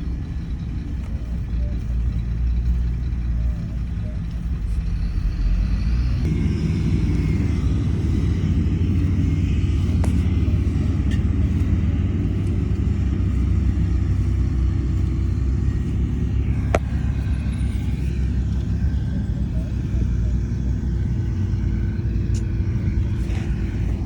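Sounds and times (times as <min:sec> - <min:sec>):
diesel machinery rumbling: 0:00.0 - 0:24.0.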